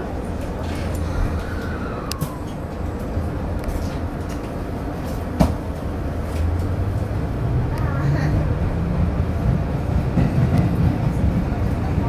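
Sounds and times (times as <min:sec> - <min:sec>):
train rumbling in tunnel: 0:00.0 - 0:12.0
falling whine: 0:00.7 - 0:03.9.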